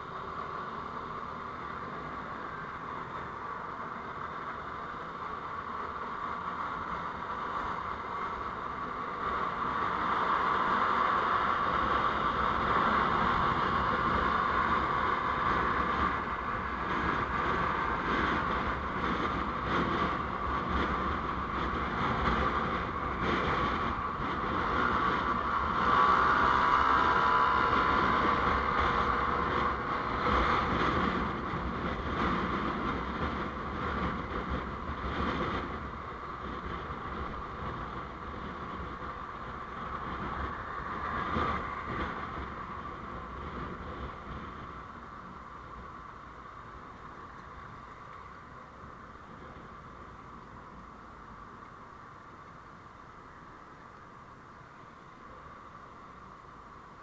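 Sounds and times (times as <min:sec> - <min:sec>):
vehicle road noise: 0:00.0 - 0:57.0.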